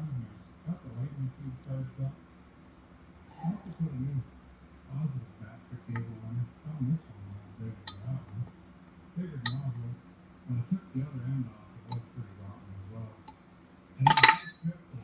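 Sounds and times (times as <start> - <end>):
low voice talking: 0.0 - 2.3, 3.3 - 8.6, 9.2 - 13.3
metallic tool clinks: 14.0 - 14.6.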